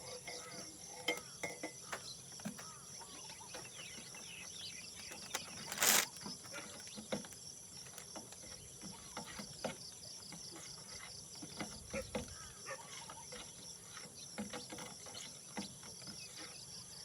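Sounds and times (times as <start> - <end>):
small clicks: 5.0 - 6.2.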